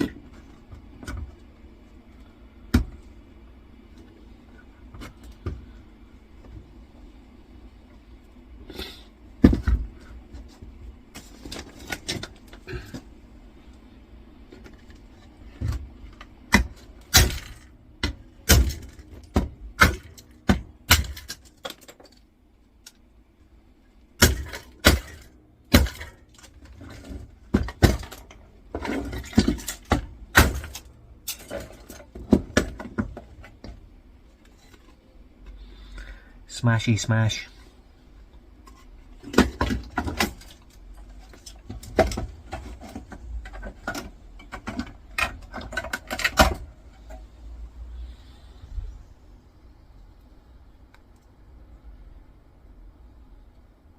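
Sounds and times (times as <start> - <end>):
meter parts knocking and clattering: 24.2 - 35.0, 38.6 - 47.3.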